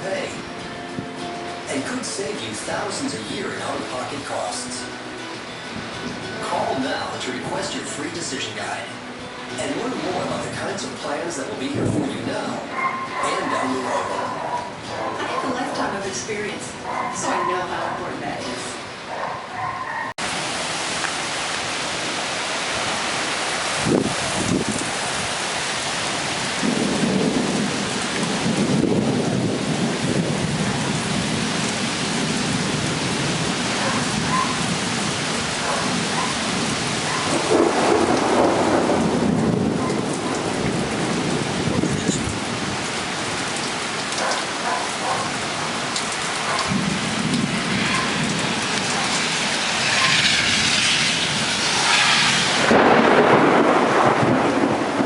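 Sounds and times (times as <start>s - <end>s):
heavy rain pouring: 0.0s - 55.0s
thunder rolling: 26.4s - 43.4s, 46.7s - 55.0s.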